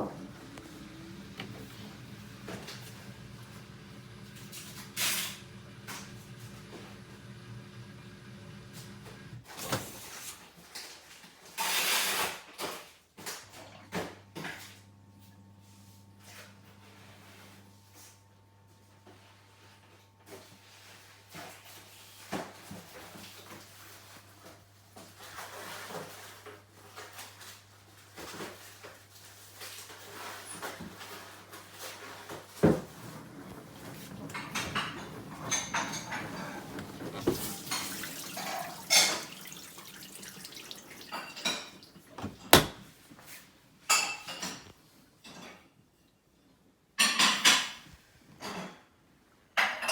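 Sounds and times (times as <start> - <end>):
dishwasher racks sliding and rattling: 0.0 - 7.2, 29.6 - 43.4
sliding rush: 32.7 - 38.9.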